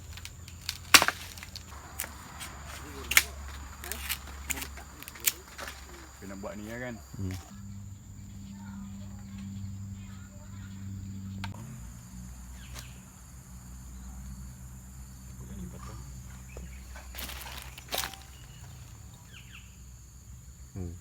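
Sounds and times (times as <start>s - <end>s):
bamboo cracking and knocking: 0.0s - 7.6s, 12.7s - 13.0s, 16.5s - 19.2s
high insect drone: 0.0s - 21.0s.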